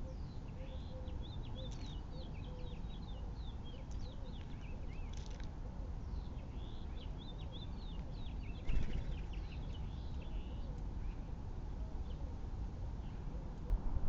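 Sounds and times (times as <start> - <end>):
small birds chirping: 0.0 - 11.3
steady low rumble: 13.6 - 14.0.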